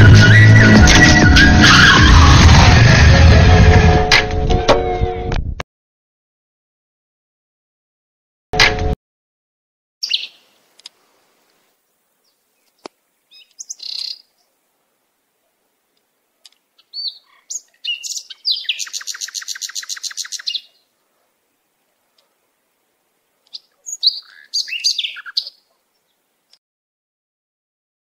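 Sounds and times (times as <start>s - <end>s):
bird trill: 10.0s - 10.5s, 13.3s - 14.3s, 16.8s - 20.8s, 23.5s - 26.2s
birds chirping and calling: 10.0s - 10.5s, 12.2s - 14.5s, 16.4s - 20.9s, 23.4s - 26.3s.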